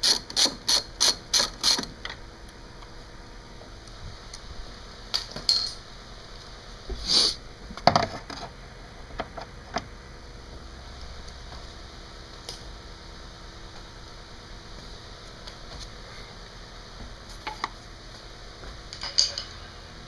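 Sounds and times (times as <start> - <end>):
ratchet stroke: 0.0 - 1.9
hand tools clinking on metal: 18.9 - 19.8.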